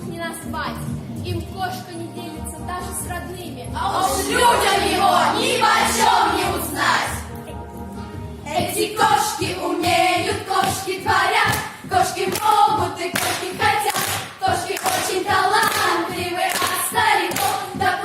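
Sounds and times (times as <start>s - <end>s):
group singing: 3.8s - 7.3s, 8.5s - 18.0s
hand clapping: 12.3s - 17.7s.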